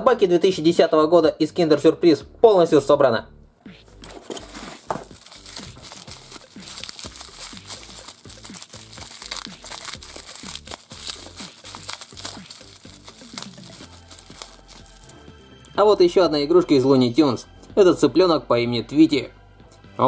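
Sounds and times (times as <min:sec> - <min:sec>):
quiet background music: 0:00.0 - 0:20.0
plastic wrap crinkling: 0:03.9 - 0:15.2.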